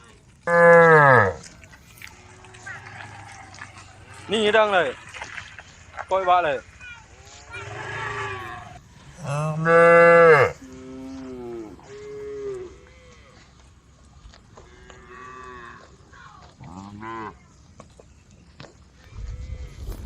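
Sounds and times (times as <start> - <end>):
cows mooing: 0.5 - 5.2, 7.3 - 13.7, 14.5 - 17.4.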